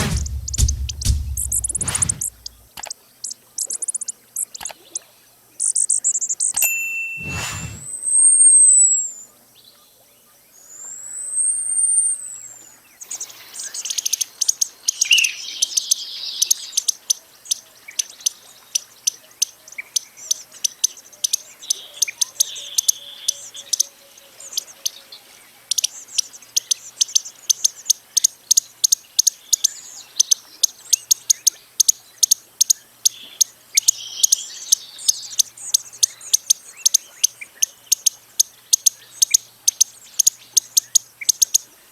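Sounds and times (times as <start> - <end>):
buzzy bird notes: 0.0 - 2.7
hummingbird rapid sharp ticks: 0.0 - 2.9
hummingbird high thin whistles: 7.2 - 8.7.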